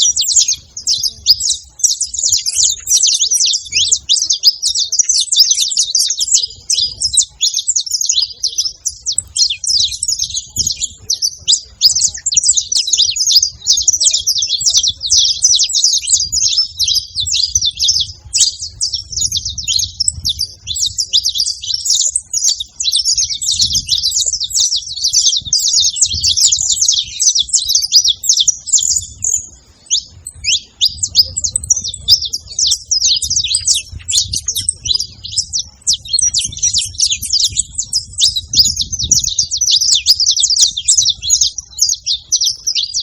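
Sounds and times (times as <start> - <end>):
finches chirping and trilling: 0.0 - 43.0.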